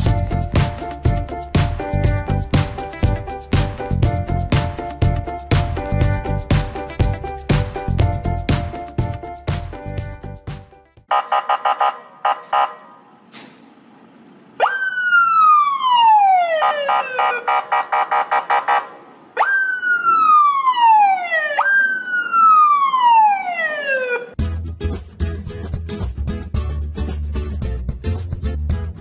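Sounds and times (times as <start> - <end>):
police siren wailing: 14.6 - 24.4
pulsing electronic siren tone: 14.6 - 24.4.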